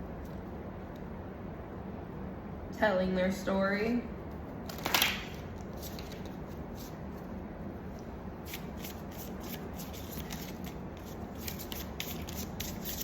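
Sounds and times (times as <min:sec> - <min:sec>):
low background hum: 0:00.0 - 0:13.0
cards rustling: 0:04.7 - 0:07.0, 0:08.4 - 0:13.0.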